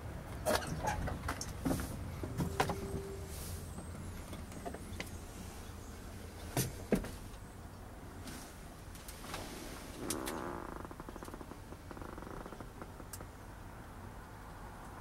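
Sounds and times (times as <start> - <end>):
brief steady tone: 2.3 - 3.6.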